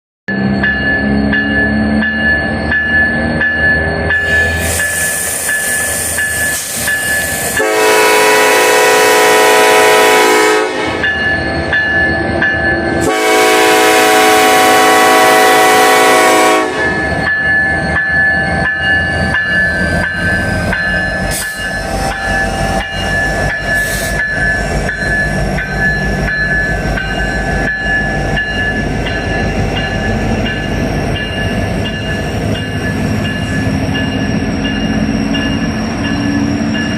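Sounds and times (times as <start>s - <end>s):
train rumbling past: 0.3s - 36.9s
locomotive air horn blasts: 7.6s - 11.0s, 13.0s - 17.0s.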